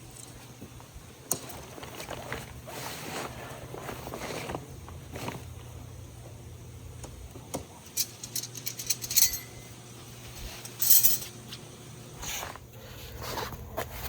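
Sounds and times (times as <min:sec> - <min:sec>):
small metal items clinking: 0:07.9 - 0:09.7, 0:10.6 - 0:11.3.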